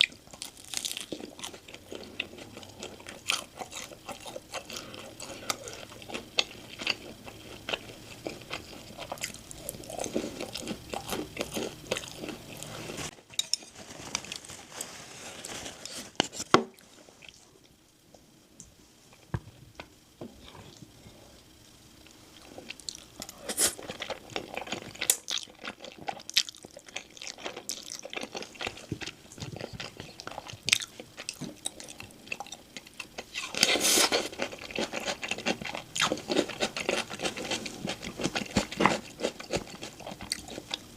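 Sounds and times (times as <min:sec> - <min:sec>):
crunching and chewing crispy chicken: 0:00.0 - 0:16.4, 0:21.9 - 0:40.9.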